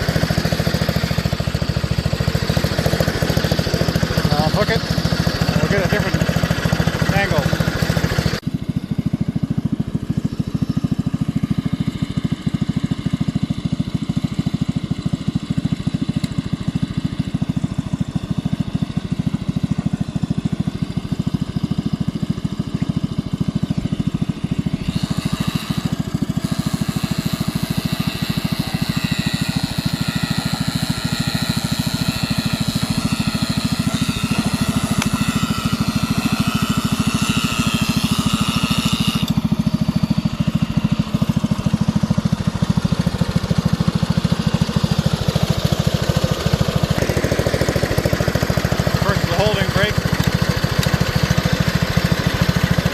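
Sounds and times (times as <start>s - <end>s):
harsh hissy mechanical noise: 0.0s - 8.5s, 24.4s - 52.9s
tractor engine running: 0.0s - 52.9s.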